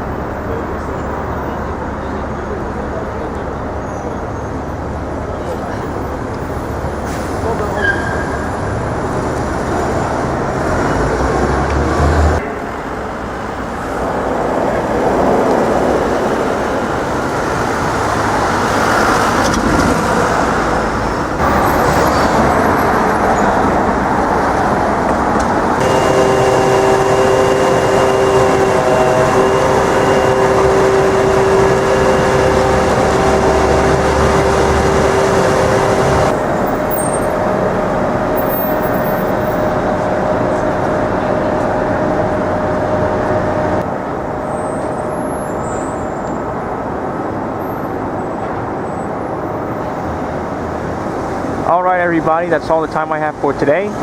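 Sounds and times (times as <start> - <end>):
heavy vehicle engine rumble: 0.0 - 46.2
passing cars: 0.0 - 54.0
steady pitched machine hum: 25.7 - 38.5.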